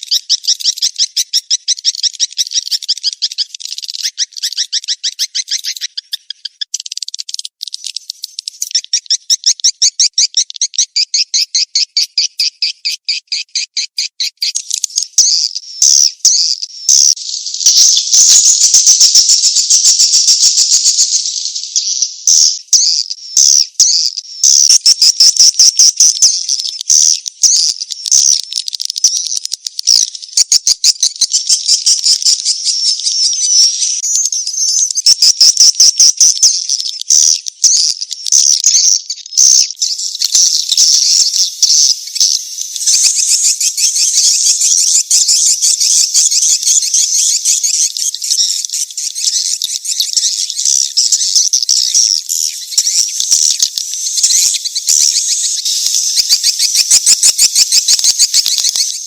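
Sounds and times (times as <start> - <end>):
swiftlet chirps and clicking trills: 39.8 - 59.0.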